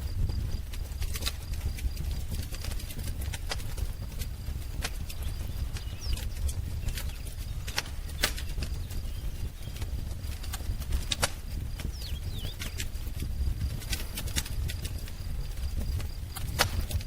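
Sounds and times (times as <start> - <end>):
wood fire crackling: 0.0 - 17.0
faint bird chirps: 5.0 - 10.0, 11.8 - 12.8.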